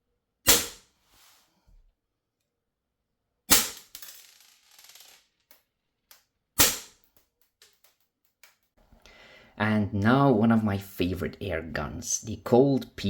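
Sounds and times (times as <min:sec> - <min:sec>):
air pistol shots: 0:00.5 - 0:00.8, 0:03.5 - 0:03.8, 0:06.6 - 0:07.0.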